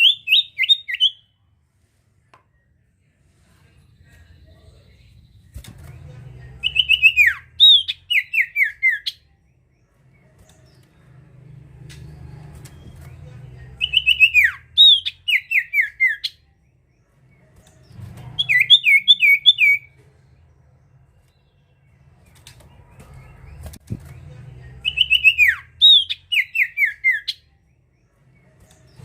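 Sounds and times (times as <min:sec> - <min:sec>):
songbird whistling: 0:13.8 - 0:16.4, 0:18.4 - 0:19.9, 0:24.8 - 0:27.4.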